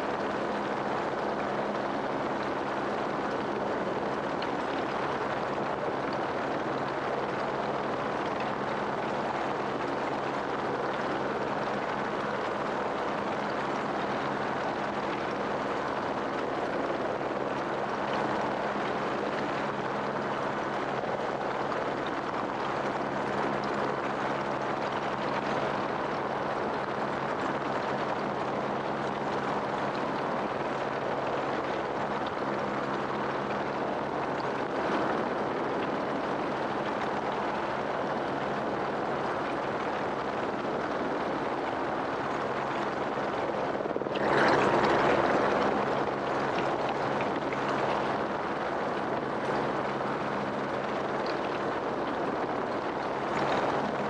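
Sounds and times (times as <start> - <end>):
helicopter engine and rotor drone: 35.2 - 44.2.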